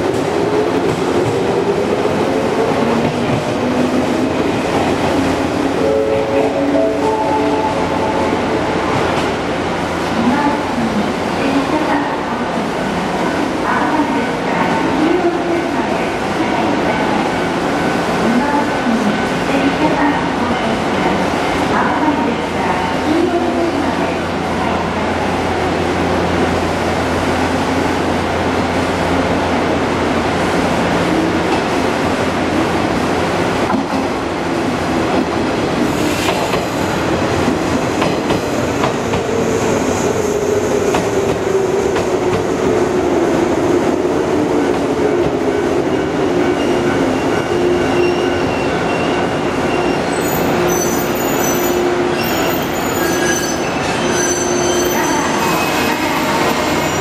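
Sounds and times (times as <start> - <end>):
train rumble and wheel clatter: 0.0 - 57.0
high wheel squeal: 47.9 - 55.8.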